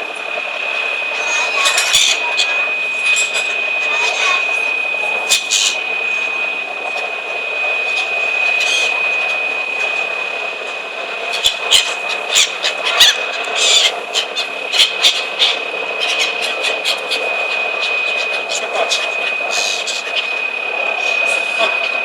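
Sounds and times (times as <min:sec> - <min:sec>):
mechanical drone with high whine: 0:00.0 - 0:22.0.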